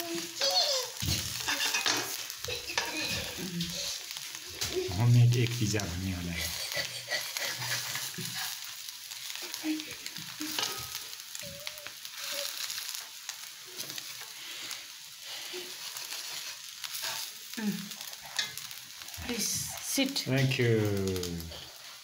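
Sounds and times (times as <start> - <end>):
omelet sizzling in a frying pan: 0.0 - 22.0
metal spoon scraping and tapping: 1.4 - 2.2.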